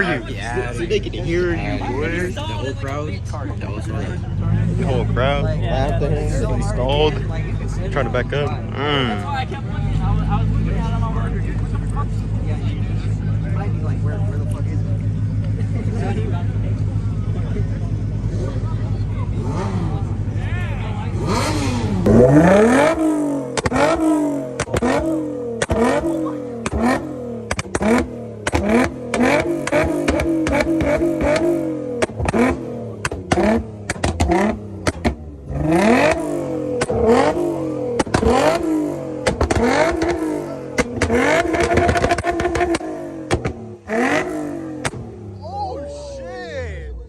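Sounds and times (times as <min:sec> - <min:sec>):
car engine revving hard: 0:17.6 - 0:20.4, 0:21.0 - 0:45.4
exhaust cracks and pops: 0:24.6 - 0:25.0, 0:26.6 - 0:35.2, 0:38.0 - 0:38.6, 0:39.2 - 0:40.2, 0:40.8 - 0:43.6.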